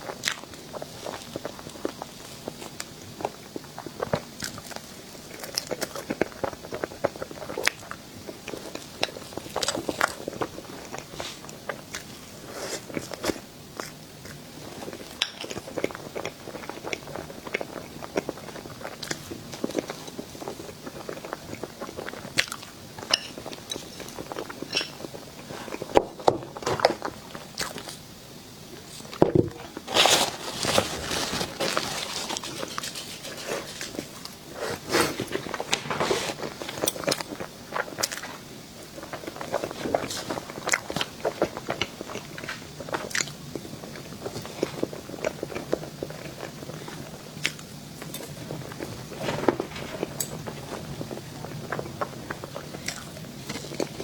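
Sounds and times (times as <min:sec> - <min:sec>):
person crunching and chewing: 0:39.0 - 0:54.0.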